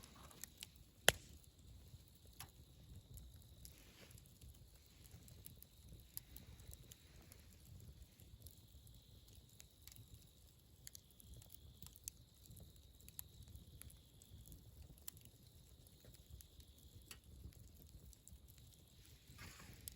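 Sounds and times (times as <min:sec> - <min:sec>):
sharp snaps of fire: 0:00.0 - 0:19.9
wood fire crackling: 0:00.0 - 0:19.9.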